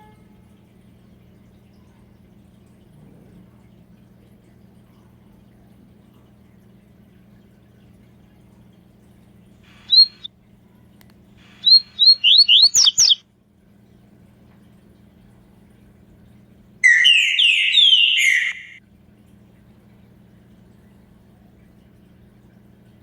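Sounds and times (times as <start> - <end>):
songbird whistled notes: 9.7 - 10.3, 11.5 - 13.2, 16.8 - 18.8.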